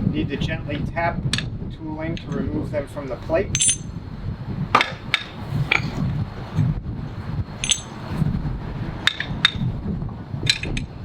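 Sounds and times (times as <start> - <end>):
hammer clinking on metal: 3.5 - 3.9, 7.6 - 8.1.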